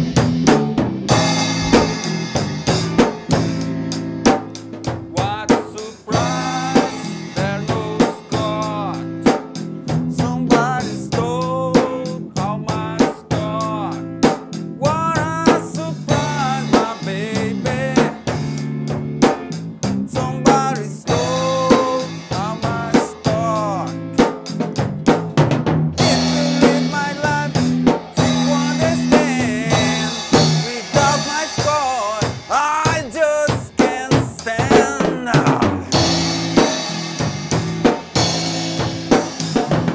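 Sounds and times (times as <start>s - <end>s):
lead guitar bending pitch: 0.0s - 4.2s
drum kit beat: 0.0s - 39.9s
rock band playing: 0.0s - 39.9s.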